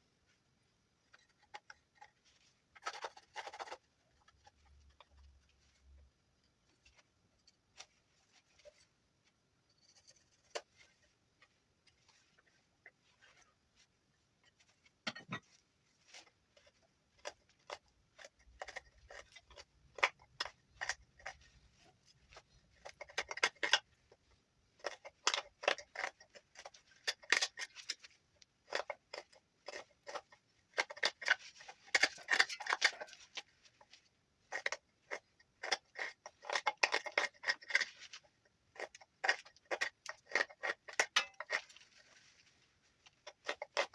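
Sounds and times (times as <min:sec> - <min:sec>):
knife scraping wood: 0:01.1 - 0:06.0, 0:16.1 - 0:23.9, 0:24.8 - 0:33.9, 0:34.5 - 0:42.4.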